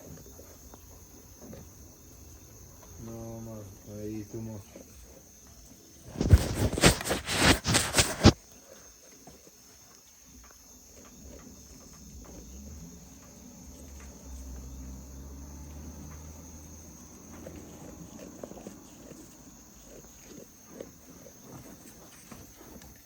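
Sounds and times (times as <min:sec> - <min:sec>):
crickets trilling: 0:00.0 - 0:23.0
loud crackling rustling: 0:06.0 - 0:08.4.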